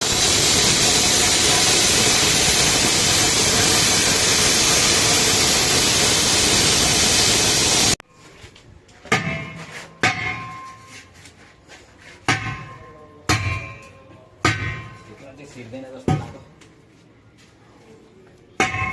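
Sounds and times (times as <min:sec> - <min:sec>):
sharp metallic knocks: 0:09.1 - 0:10.8, 0:12.3 - 0:15.1, 0:18.6 - 0:18.9.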